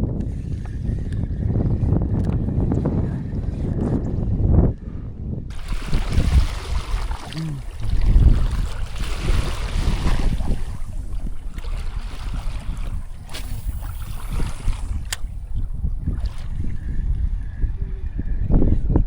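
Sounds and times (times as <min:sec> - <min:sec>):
wind rumbling on microphone: 0:00.0 - 0:19.0
water splashing around kayak: 0:05.5 - 0:17.8.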